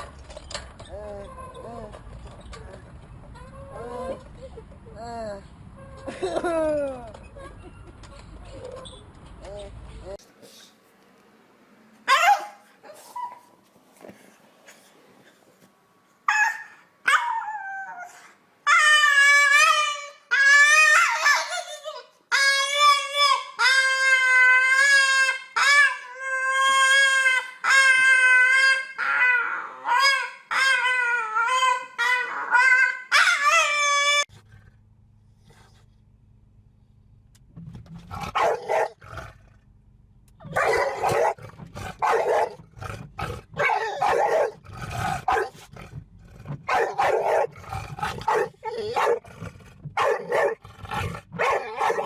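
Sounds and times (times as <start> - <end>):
dog barking: 12.1 - 12.7, 38.3 - 39.0, 40.4 - 41.4, 42.0 - 42.6, 43.6 - 44.6, 45.3 - 45.6, 46.7 - 47.6, 48.2 - 49.2, 50.0 - 50.6, 51.4 - 52.0.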